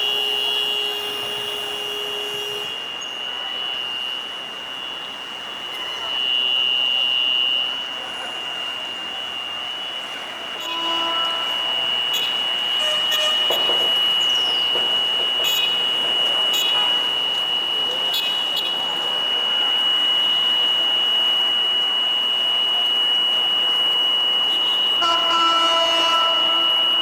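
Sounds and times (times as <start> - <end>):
vehicle horn honking: 0.0 - 4.2, 10.5 - 19.2, 24.5 - 27.0
level crossing warning buzzer: 0.0 - 27.0.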